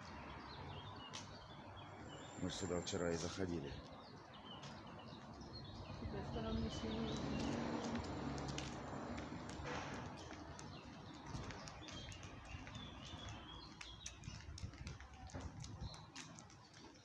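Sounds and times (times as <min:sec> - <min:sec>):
small birds chirping: 0:00.0 - 0:17.0
footsteps walking: 0:06.8 - 0:17.0.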